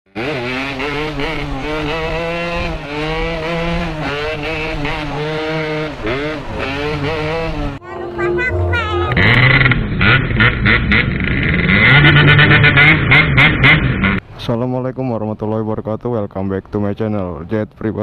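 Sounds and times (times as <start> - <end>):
two-stroke motorcycle engine revving: 0.1 - 7.8, 9.4 - 14.2.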